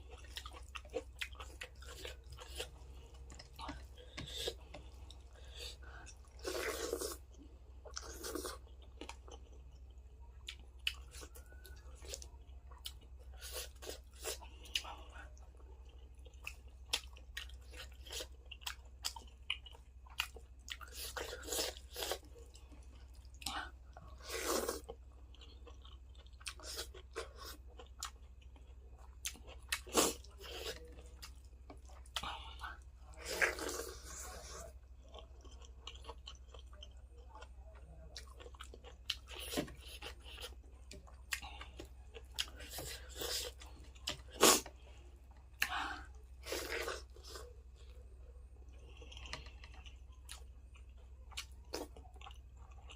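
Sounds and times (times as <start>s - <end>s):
low steady hum: 0.0s - 52.9s
person chewing and crunching food: 0.0s - 52.9s.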